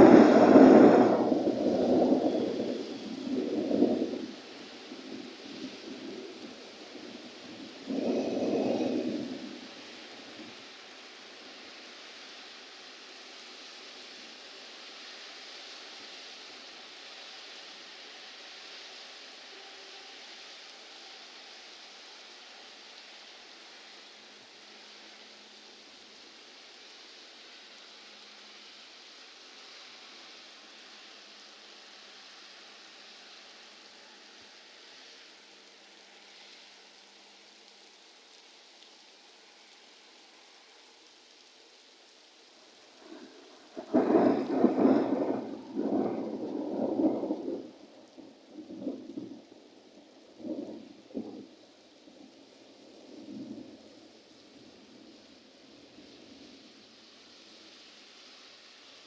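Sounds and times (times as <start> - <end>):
sharp thunder crack: 0.0 - 4.3, 43.7 - 47.8
thunder rumbling: 0.0 - 10.7, 42.9 - 51.6
rain hiss: 0.0 - 59.0.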